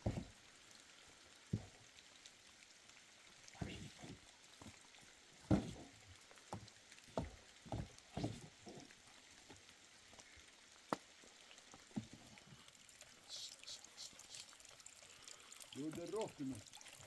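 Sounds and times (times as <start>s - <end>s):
soft thuds and knocks: 0.0s - 0.4s, 1.5s - 1.8s, 3.6s - 4.8s, 5.4s - 8.9s, 11.8s - 12.2s
faint background noise: 0.0s - 17.0s.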